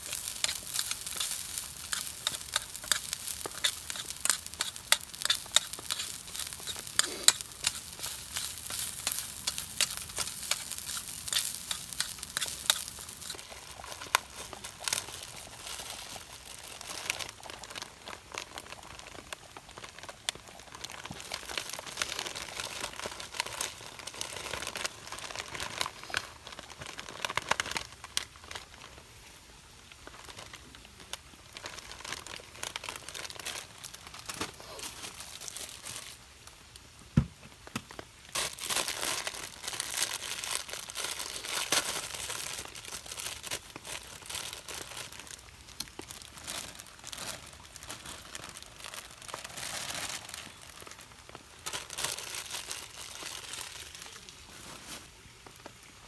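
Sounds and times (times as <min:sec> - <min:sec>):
food sizzling in frying pan: 0:00.0 - 0:16.5.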